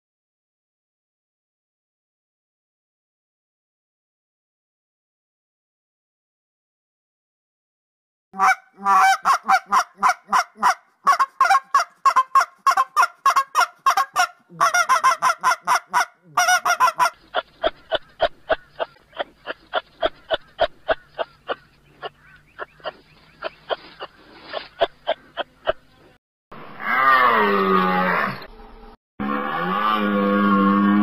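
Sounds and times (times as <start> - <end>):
goose honking: 8.4 - 17.2.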